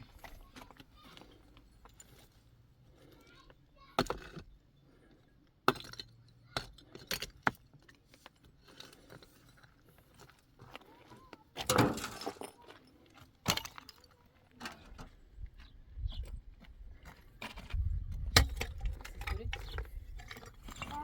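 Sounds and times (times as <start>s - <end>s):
objects knocking and clinking: 11.6s - 12.7s
objects clattering: 11.6s - 15.2s.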